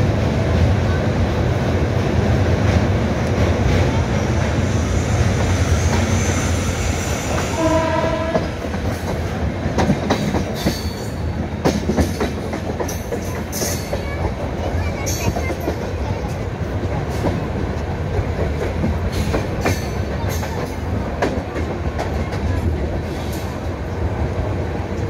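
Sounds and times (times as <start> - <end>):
train rumbling over bridge: 0.0 - 25.0
train horn: 7.4 - 8.6.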